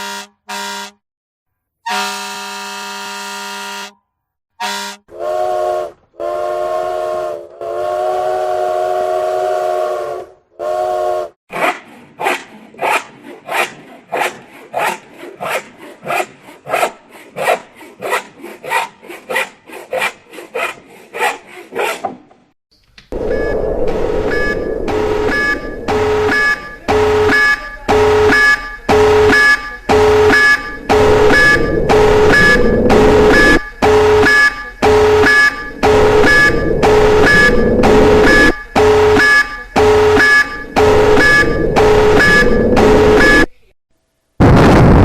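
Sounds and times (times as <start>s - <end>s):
electronic alarm beeping: 23.2s - 43.6s.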